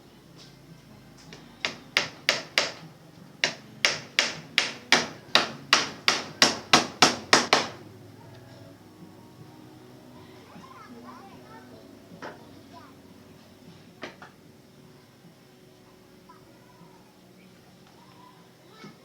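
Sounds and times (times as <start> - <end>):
hammer blows: 1.2 - 7.9.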